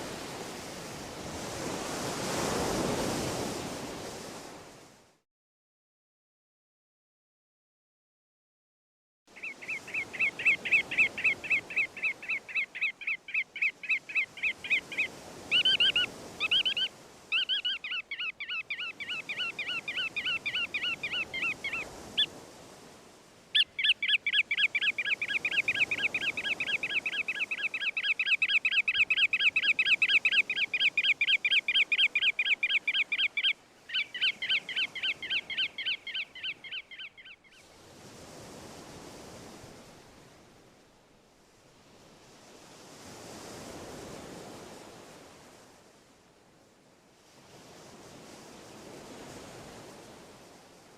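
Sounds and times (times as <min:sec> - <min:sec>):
songbird trilling: 0:09.4 - 0:22.3, 0:23.6 - 0:37.6.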